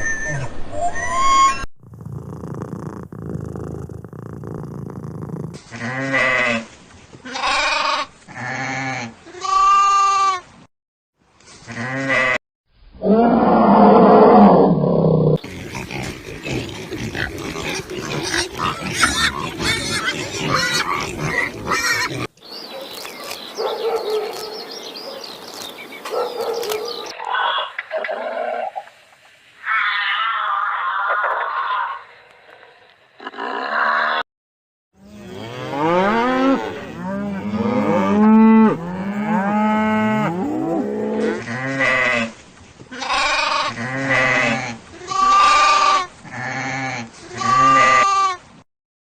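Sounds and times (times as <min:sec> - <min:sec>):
low rough roar-like call: 0:13.0 - 0:22.3
overlapping animal calls: 0:15.4 - 0:22.3.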